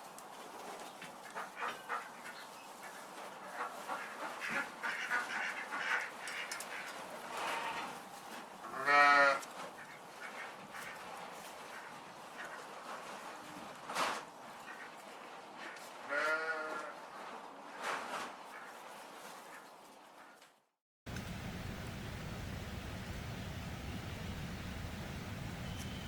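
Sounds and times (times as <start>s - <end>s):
farm animals calling: 1.2s - 8.0s, 8.6s - 11.0s.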